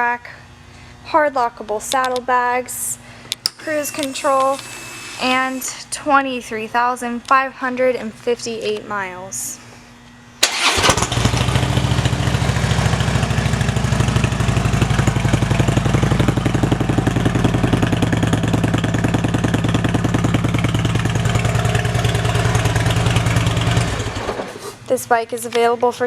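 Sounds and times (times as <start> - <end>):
motorcycle engine starting: 10.4 - 25.0
motorcycle engine idling: 10.5 - 24.5.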